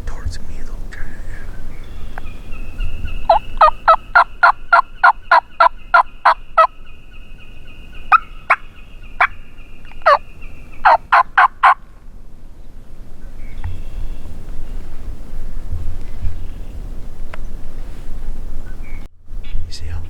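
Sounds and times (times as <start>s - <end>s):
turkey call yelps: 2.0s - 6.8s, 8.0s - 9.4s, 10.0s - 10.2s, 10.8s - 11.8s.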